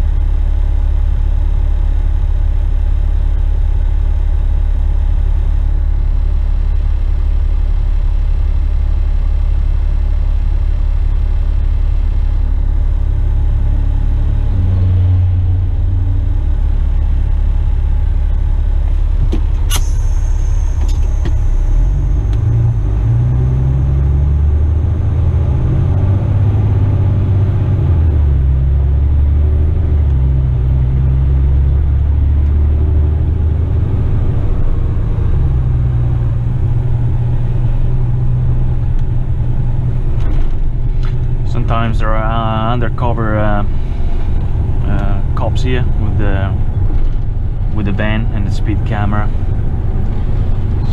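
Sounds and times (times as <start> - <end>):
truck diesel engine: 0.0 - 50.9
sharp click: 19.3 - 22.4.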